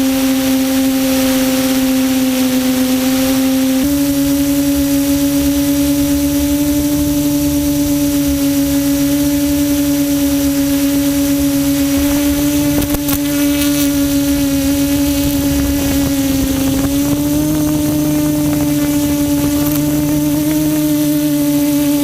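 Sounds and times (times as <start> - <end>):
quadcopter motors humming: 0.0 - 22.0.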